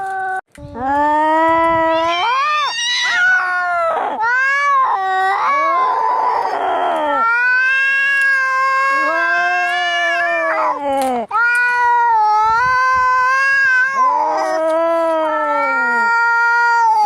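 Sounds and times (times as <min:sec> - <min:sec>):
cats yowling: 0:00.0 - 0:17.0.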